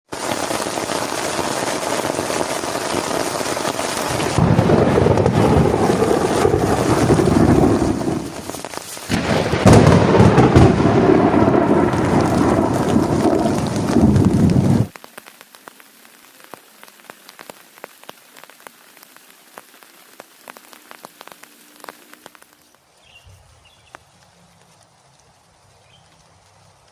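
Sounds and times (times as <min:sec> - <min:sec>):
heavy rain: 0:00.0 - 0:26.9
scattered raindrops pattering: 0:00.0 - 0:26.9
thunder rumbling: 0:03.7 - 0:14.9.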